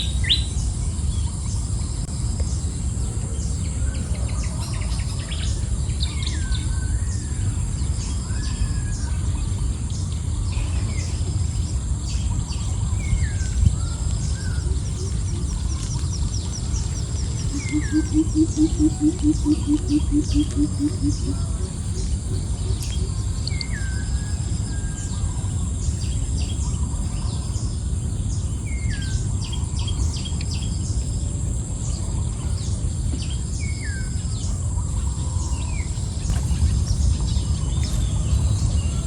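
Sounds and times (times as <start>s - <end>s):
low rumble: 0.0s - 39.0s
high-pitched insect drone: 10.9s - 24.1s
birds whistling and chirping: 12.1s - 21.6s
low pulsing call: 12.7s - 25.5s.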